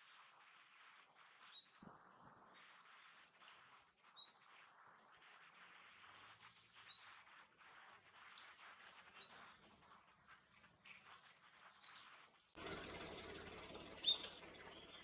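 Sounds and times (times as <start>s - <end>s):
steady low hiss: 0.0s - 15.0s
high-pitched bird chirps: 12.6s - 15.0s.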